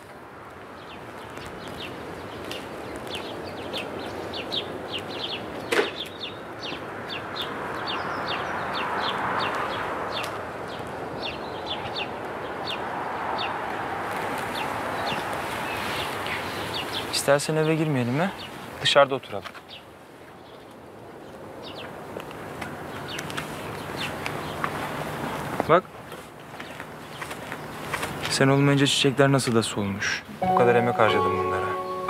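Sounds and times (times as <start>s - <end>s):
birds chirping: 0.0s - 13.7s, 14.4s - 32.0s.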